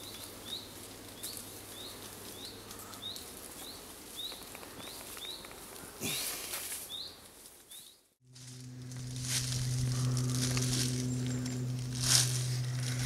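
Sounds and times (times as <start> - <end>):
bird rising chirp: 8.5 - 13.0.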